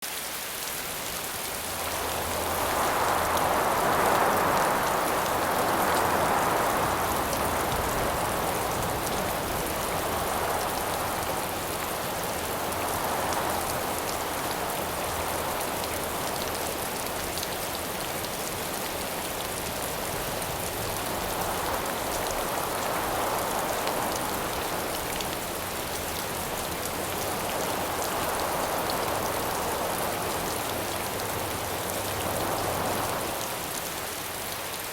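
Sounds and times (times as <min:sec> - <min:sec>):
rain pattering: 0:00.0 - 0:34.9
wind gusts: 0:00.7 - 0:34.9.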